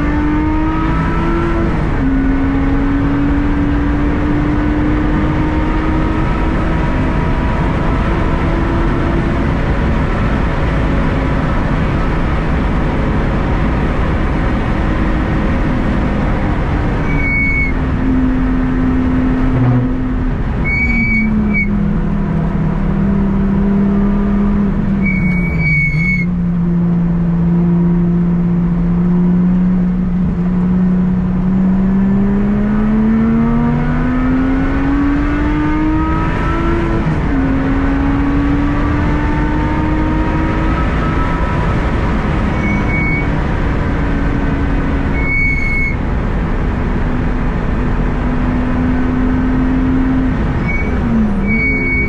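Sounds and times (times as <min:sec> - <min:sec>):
car engine running: 0:00.0 - 0:33.6, 0:34.7 - 0:52.0
road noise: 0:00.0 - 0:52.0
high-pitched chirps: 0:17.1 - 0:17.7, 0:20.6 - 0:21.7.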